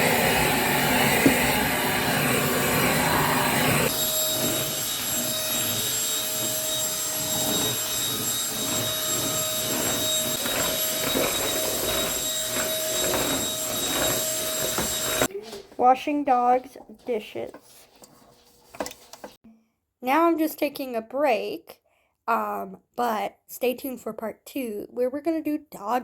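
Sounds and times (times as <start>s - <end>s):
steady high whine: 0.0s - 15.3s
vacuum cleaner running: 0.0s - 15.3s.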